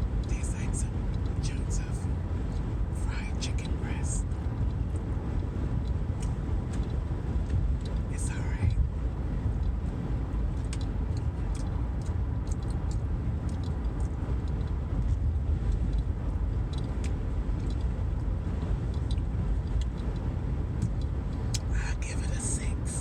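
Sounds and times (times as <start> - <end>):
car rumble inside cabin: 0.0 - 23.0
faint clicks and taps: 4.4 - 8.1, 9.5 - 21.7.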